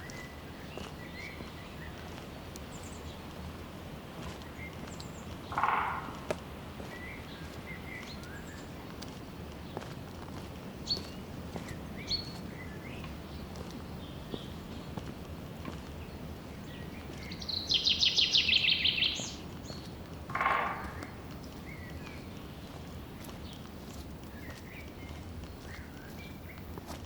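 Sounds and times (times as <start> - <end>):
songbird trilling: 4.4 - 8.8, 16.0 - 26.6
faint high bird chirps: 17.2 - 22.9.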